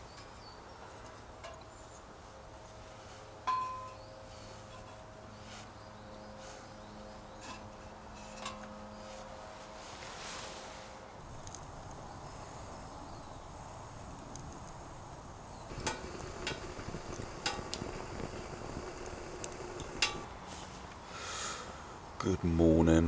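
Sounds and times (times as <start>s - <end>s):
outdoor ambience hiss: 0.0s - 23.0s
sharp clicks and ticks: 11.4s - 12.1s, 14.0s - 14.8s, 15.7s - 20.3s.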